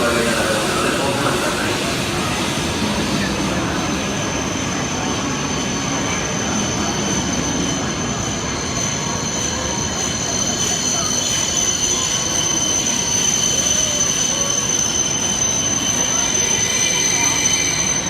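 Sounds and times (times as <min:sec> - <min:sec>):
train rolling into platform: 0:00.0 - 0:18.0
wheel squeal: 0:05.4 - 0:18.0.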